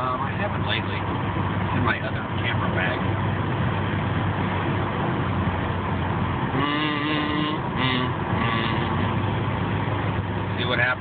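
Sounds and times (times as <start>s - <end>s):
car road and engine noise: 0.0s - 11.0s
person humming: 6.6s - 9.1s.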